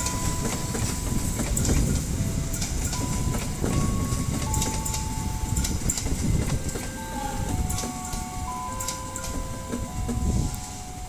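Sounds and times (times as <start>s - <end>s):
train rolling past: 0.0s - 11.0s
wheels clattering over rail joints: 0.0s - 11.0s.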